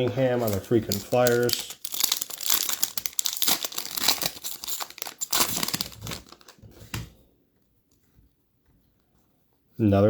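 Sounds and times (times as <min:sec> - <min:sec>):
plastic wrapper crinkling and tearing: 0:00.4 - 0:06.6.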